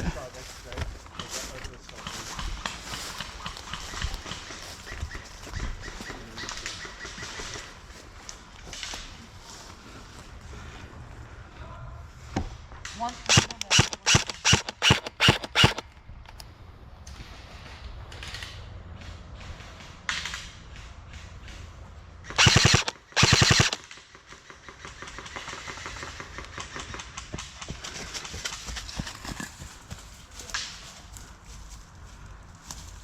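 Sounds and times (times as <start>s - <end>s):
airsoft rifle full-auto bursts: 13.3s - 15.9s, 22.3s - 23.9s.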